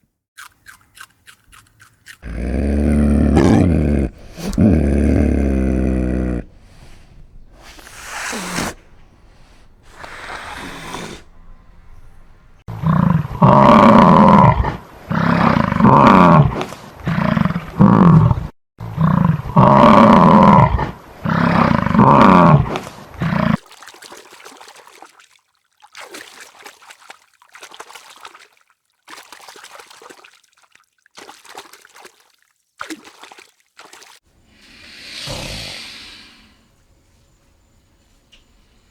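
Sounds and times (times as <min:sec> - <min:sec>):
large animal calling loudly: 0:03.3 - 0:06.4.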